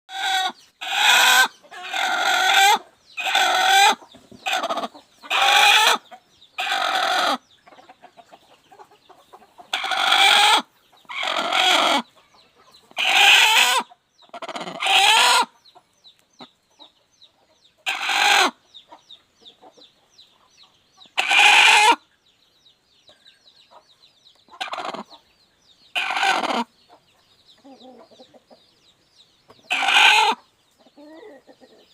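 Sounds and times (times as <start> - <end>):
hen clucking loudly: 0.1 - 15.6, 17.8 - 19.0, 21.1 - 22.0, 24.5 - 25.2, 25.9 - 26.7, 29.6 - 31.9.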